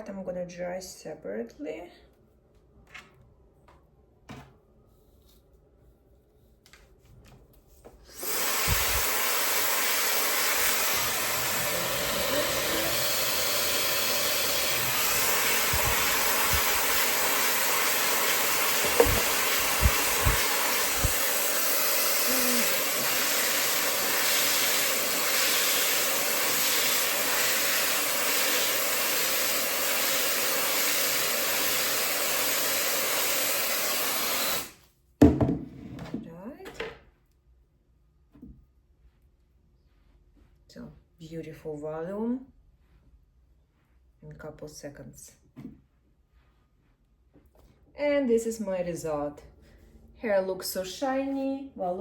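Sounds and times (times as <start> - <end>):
hair dryer airflow hiss: 8.1 - 34.8.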